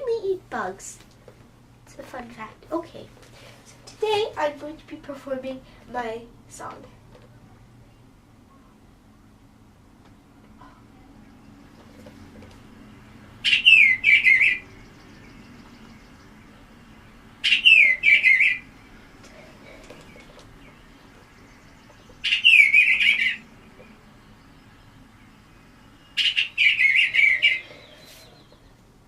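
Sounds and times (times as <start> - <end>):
bird warbling song: 10.8 - 29.0.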